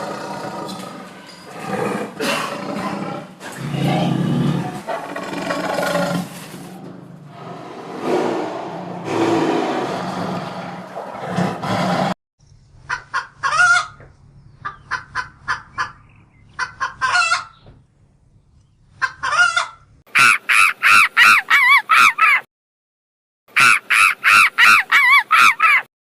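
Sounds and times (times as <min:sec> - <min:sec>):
chicken clucking and squawking: 0:12.9 - 0:14.0, 0:14.6 - 0:17.6, 0:19.0 - 0:22.4, 0:23.6 - 0:25.9.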